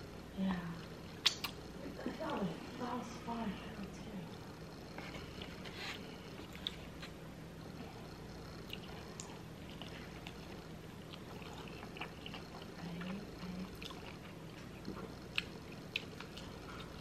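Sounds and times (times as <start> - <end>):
faint steady hum: 0.0 - 17.0
person chewing food: 4.9 - 7.2, 8.6 - 17.0.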